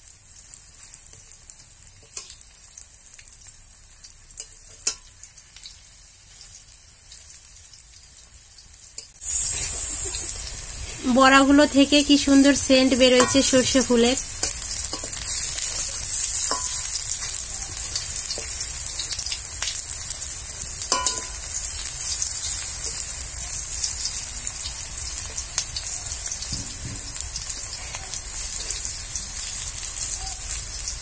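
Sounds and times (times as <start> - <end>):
fritters sizzling in hot oil: 0.0 - 31.0
metal spatula scraping a pan: 9.2 - 10.8, 12.9 - 17.4.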